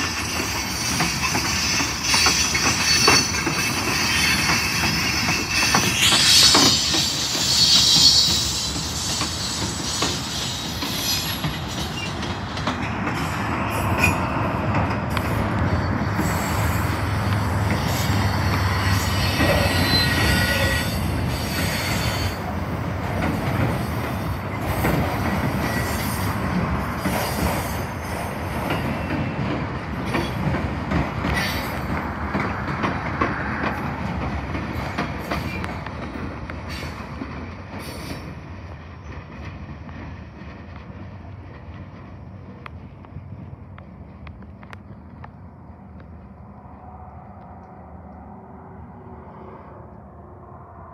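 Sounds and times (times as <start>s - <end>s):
high wheel squeals: 0.0s - 12.2s, 17.8s - 22.4s
steel wheels rumbling and clicking: 0.0s - 48.5s.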